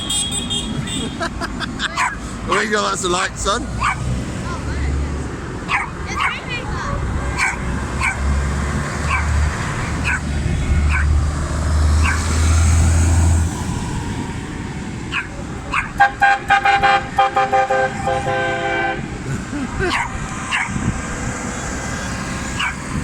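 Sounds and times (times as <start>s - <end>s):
tractor horn tooting: 0.0s - 1.3s, 16.0s - 19.2s
dog yapping: 2.0s - 2.6s, 3.8s - 4.0s, 5.7s - 6.5s, 7.4s - 8.2s, 9.0s - 9.4s, 10.0s - 10.3s, 10.9s - 11.1s, 12.0s - 12.2s, 15.1s - 16.0s, 19.9s - 20.8s, 22.6s - 22.8s.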